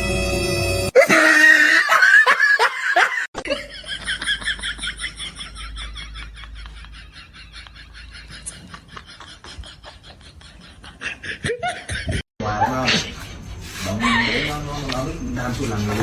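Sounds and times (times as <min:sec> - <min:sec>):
person laughing hard: 0:01.0 - 0:12.8.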